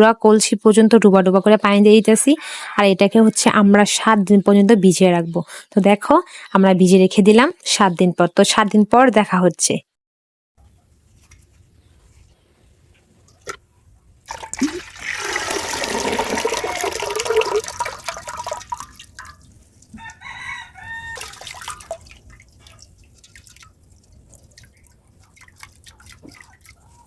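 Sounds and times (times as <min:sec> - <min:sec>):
water pouring and splashing: 0:14.2 - 0:27.0
rooster crowing: 0:16.4 - 0:17.4, 0:19.9 - 0:21.8.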